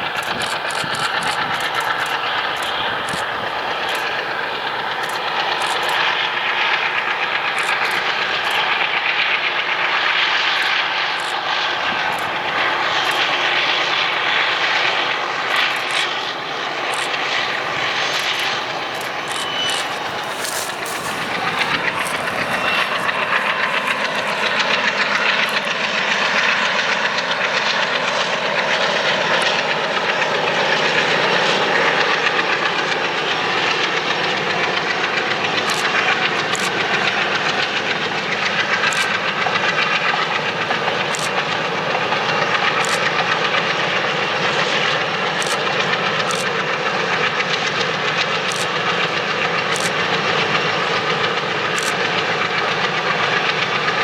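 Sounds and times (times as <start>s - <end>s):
wheels clicking over rail joints: 0.0s - 9.2s, 15.3s - 24.6s, 35.5s - 36.9s, 38.2s - 41.6s, 45.0s - 46.6s, 47.2s - 53.7s
train wheels on rails: 0.0s - 54.0s.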